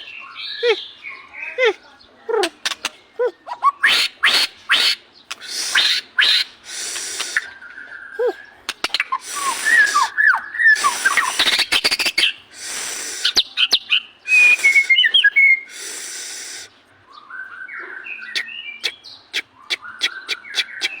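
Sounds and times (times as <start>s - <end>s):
harsh raspy bird calls: 0.0s - 16.9s, 17.7s - 21.0s
songbird singing varied song: 0.0s - 21.0s
sharp bird clicks: 2.5s - 3.0s, 4.3s - 7.5s, 8.6s - 13.4s.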